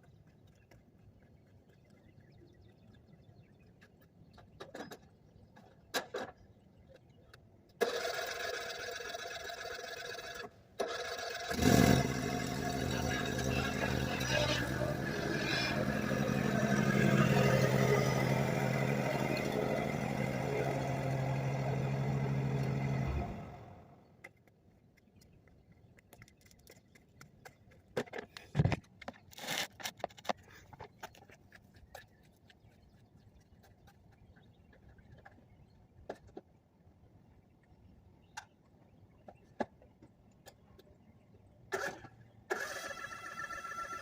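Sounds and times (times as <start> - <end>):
lawn mower engine running: 7.8 - 23.9.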